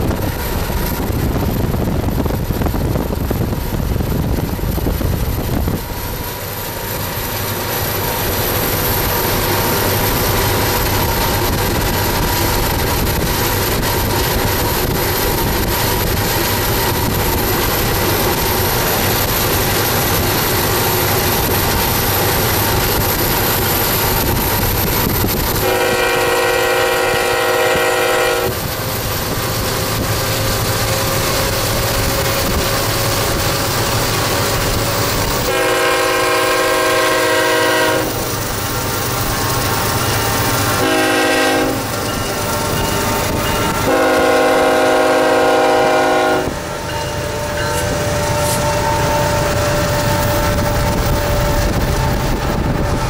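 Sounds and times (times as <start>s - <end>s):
freight train rumbling: 0.0s - 53.0s
locomotive horn blast: 25.6s - 28.7s, 35.4s - 38.4s, 40.7s - 42.1s, 43.5s - 50.1s.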